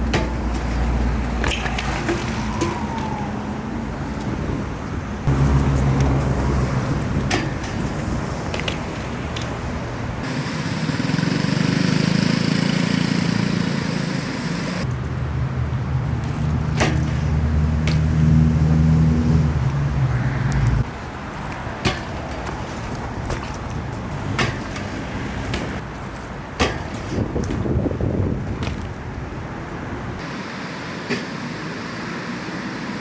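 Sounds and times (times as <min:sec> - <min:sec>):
traffic engines humming: 0:00.0 - 0:33.0
sharp knocks: 0:05.2 - 0:10.2, 0:19.5 - 0:29.1.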